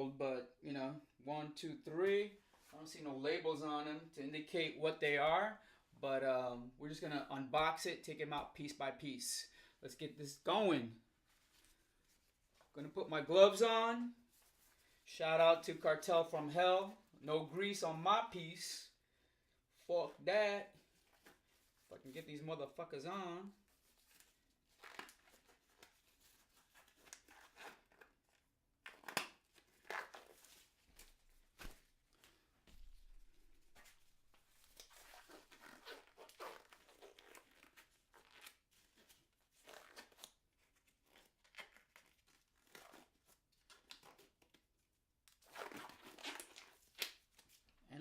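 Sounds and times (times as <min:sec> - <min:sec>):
gloves rustling and crinkling: 0:11.0 - 0:13.0, 0:14.0 - 0:17.2, 0:19.7 - 0:47.9.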